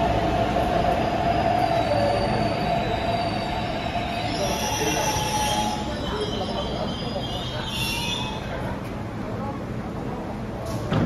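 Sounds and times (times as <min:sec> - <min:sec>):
braking train whine: 0:00.0 - 0:09.3
high-pitched brake squeal: 0:00.4 - 0:08.8.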